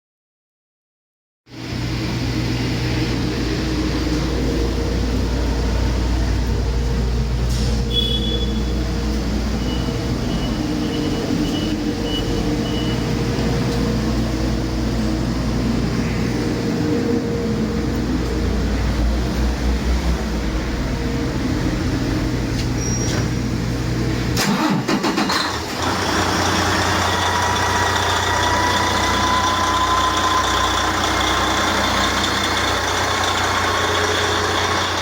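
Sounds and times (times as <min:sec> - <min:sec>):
diesel engine running: 0:01.5 - 0:35.0
short high tone: 0:07.5 - 0:08.9.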